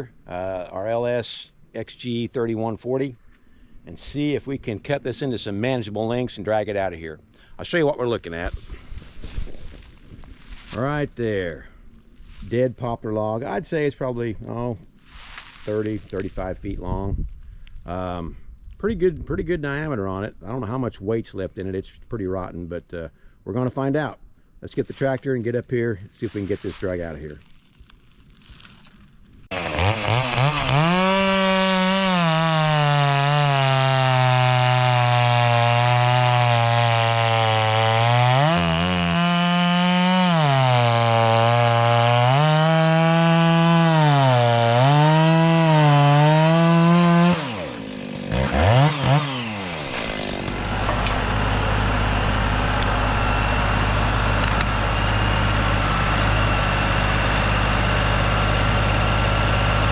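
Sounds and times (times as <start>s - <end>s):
chainsaw running at high revs: 29.5s - 59.9s
tractor diesel engine running: 47.8s - 59.9s.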